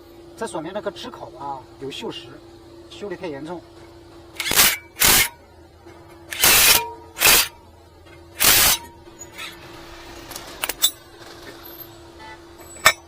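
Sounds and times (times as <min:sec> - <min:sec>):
metallic ring: 0:10.7 - 0:11.1, 0:11.7 - 0:13.0.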